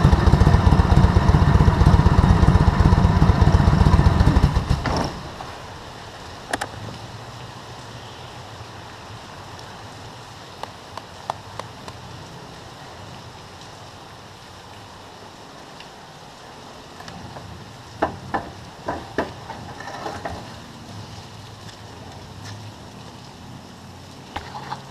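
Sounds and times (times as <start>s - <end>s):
rain hiss: 0.0s - 24.9s
raindrops tapping: 10.5s - 12.3s, 16.9s - 24.9s.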